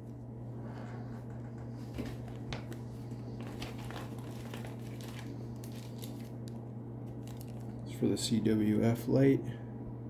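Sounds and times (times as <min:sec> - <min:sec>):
steady low hum: 0:00.0 - 0:10.0
packaging crinkling: 0:01.8 - 0:07.9.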